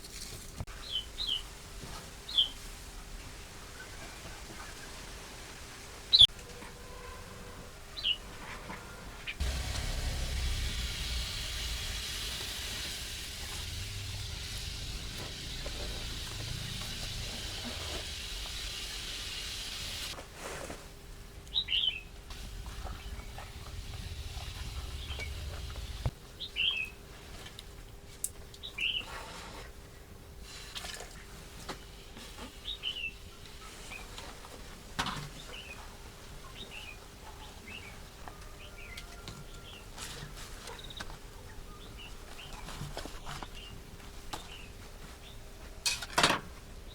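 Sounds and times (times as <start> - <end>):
steady hiss with low rumble: 9.2 - 39.2.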